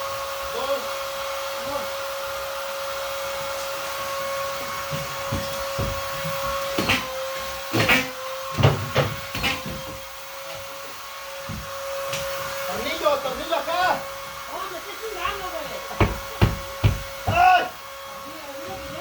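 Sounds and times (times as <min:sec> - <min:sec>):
vacuum cleaner whining: 0:00.0 - 0:19.0
knocks: 0:04.9 - 0:07.1, 0:16.0 - 0:17.5.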